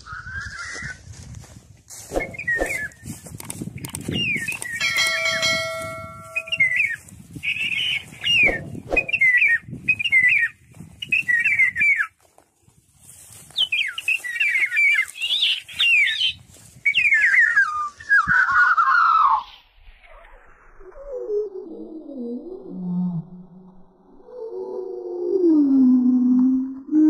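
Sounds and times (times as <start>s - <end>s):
birds chirping: 2.1s - 12.1s, 13.5s - 19.4s.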